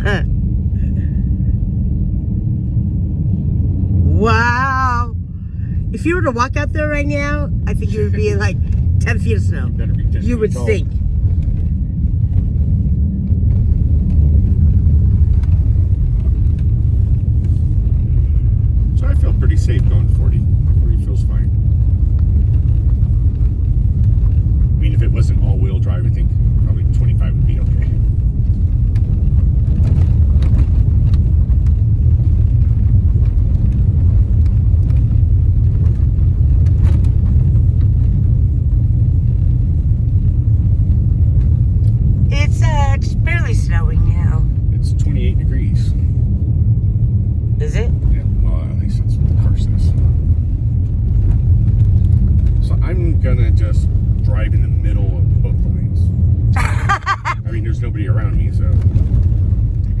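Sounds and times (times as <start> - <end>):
road rumble inside car: 0.0 - 60.0.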